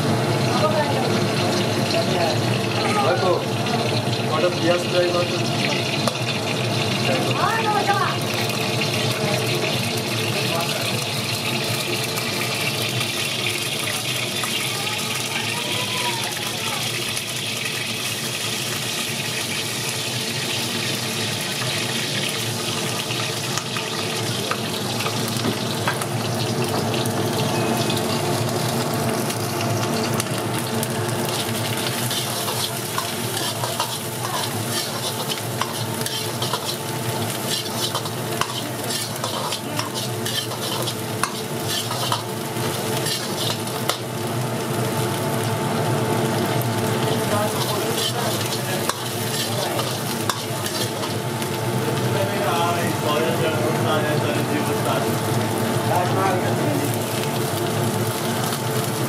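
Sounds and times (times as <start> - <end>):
food frying in a pot: 0.0 - 59.0
metal ladle scraping pot: 31.9 - 42.3, 43.0 - 44.0.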